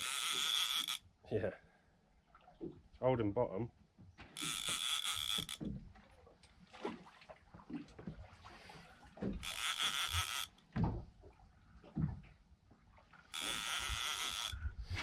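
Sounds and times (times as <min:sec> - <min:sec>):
fishing reel whirring: 0:00.0 - 0:01.1, 0:04.4 - 0:05.7, 0:09.4 - 0:10.5, 0:13.3 - 0:15.0.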